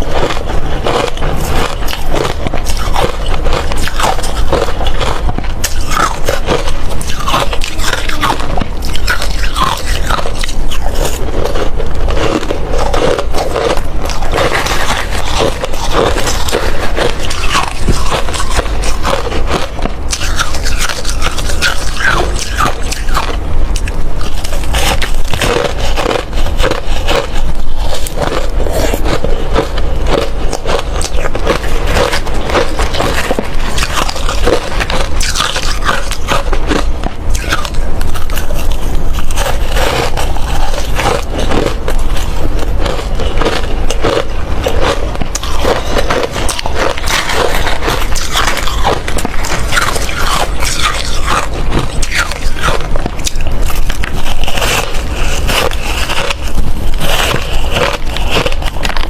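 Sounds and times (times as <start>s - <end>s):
ice crunching while chewed: 0.0s - 59.0s.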